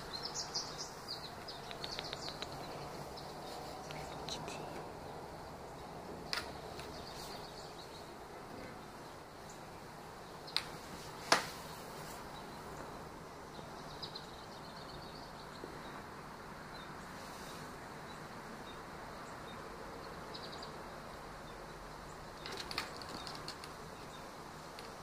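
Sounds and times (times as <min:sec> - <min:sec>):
faint bird chirps: 0:00.0 - 0:04.8
background hiss: 0:00.0 - 0:25.0
sharp click: 0:01.6 - 0:02.5.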